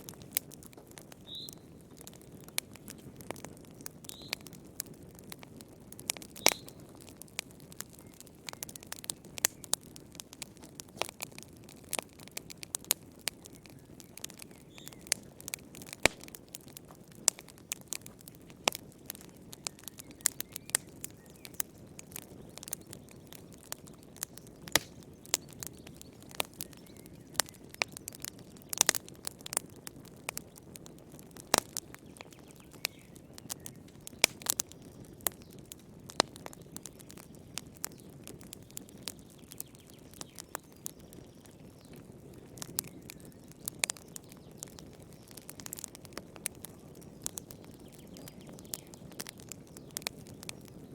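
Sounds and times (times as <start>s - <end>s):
burning wood popping and snapping: 0.0s - 50.9s
flames rushing: 2.0s - 32.2s, 33.3s - 35.1s, 44.6s - 50.9s.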